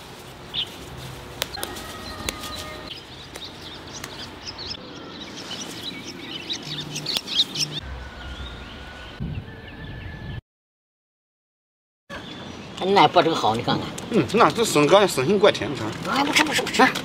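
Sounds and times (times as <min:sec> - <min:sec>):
birds chirping and calling: 0:00.4 - 0:00.8, 0:01.4 - 0:10.4.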